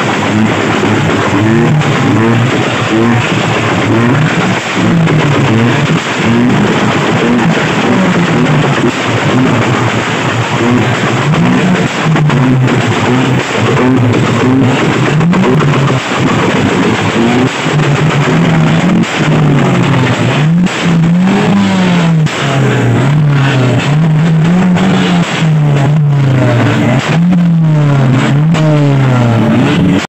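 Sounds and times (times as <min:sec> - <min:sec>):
car engine revving: 0:00.0 - 0:30.0
steady rush of noise: 0:00.0 - 0:30.0.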